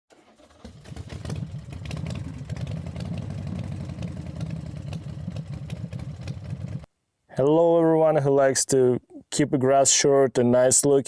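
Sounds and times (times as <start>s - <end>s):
lawn tractor engine running: 0.1s - 6.9s.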